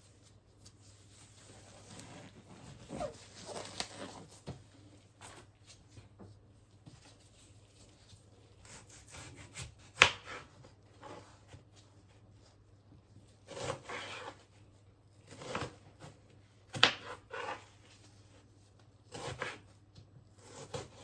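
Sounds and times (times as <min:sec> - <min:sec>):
rubbing and rustling: 0:00.0 - 0:08.5.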